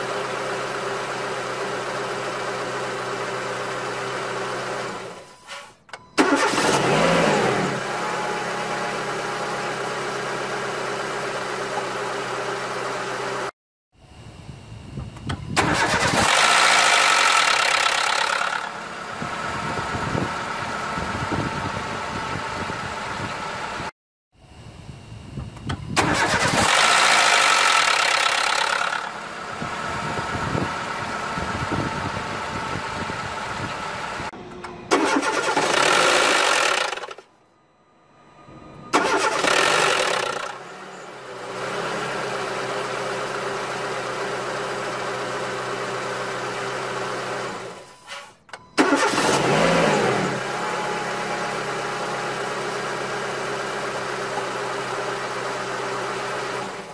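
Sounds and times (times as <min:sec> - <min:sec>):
petrol engine cold-starting: 0:04.8 - 0:08.6, 0:15.0 - 0:20.3, 0:25.5 - 0:37.3, 0:38.5 - 0:41.3, 0:42.6 - 0:56.9.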